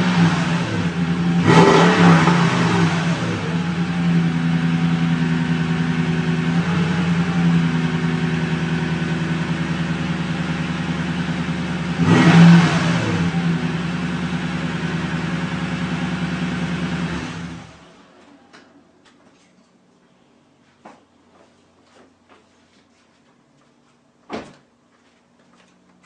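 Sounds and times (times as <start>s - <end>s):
engine shutting off: 0.0s - 18.4s.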